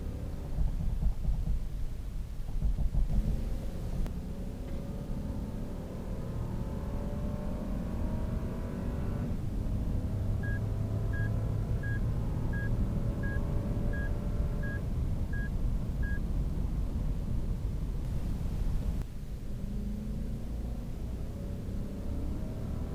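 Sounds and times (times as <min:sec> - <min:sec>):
car engine accelerating hard: 0:03.1 - 0:14.8, 0:19.5 - 0:22.9.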